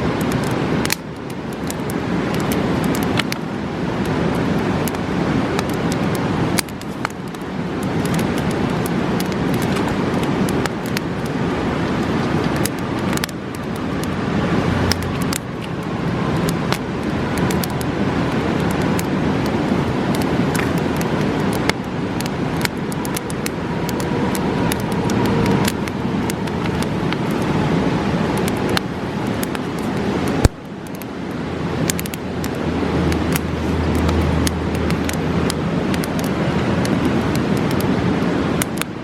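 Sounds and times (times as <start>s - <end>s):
campfire crackling and popping: 0.0s - 39.0s
fast-flowing river rushing: 0.0s - 39.0s.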